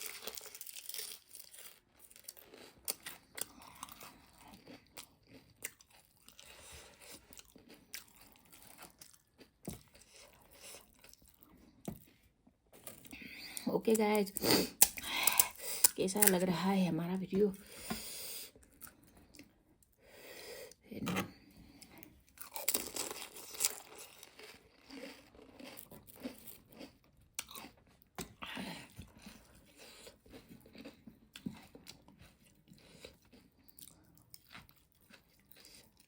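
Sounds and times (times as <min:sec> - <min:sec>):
crisp shells crunching in mouth: 0:00.0 - 0:11.5, 0:22.4 - 0:28.4.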